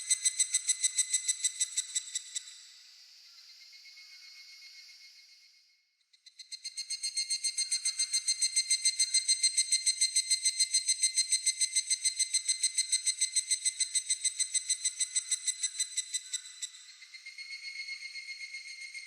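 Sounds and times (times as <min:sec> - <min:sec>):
cicada calling high pulses: 0:07.4 - 0:19.0.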